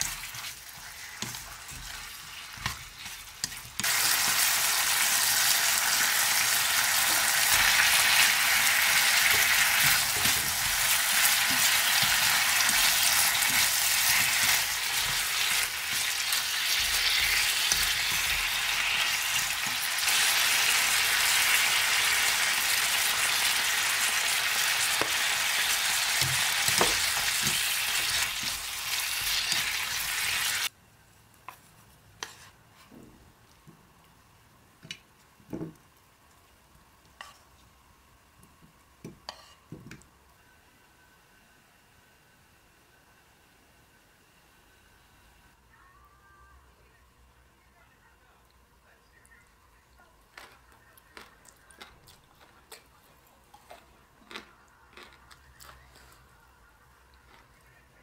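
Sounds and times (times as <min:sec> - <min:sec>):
food sizzling in a frying pan: 0:00.0 - 0:30.7.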